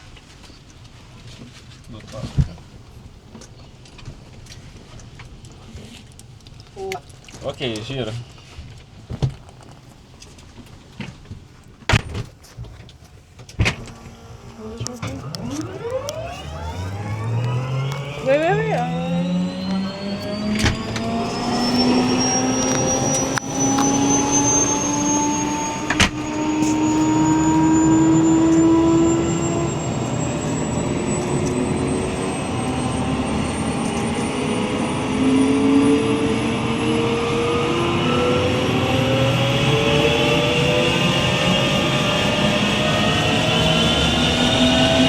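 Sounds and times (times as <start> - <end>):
sharp clicks: 13.6 - 24.0
helicopter turbine spooling up: 13.6 - 45.0.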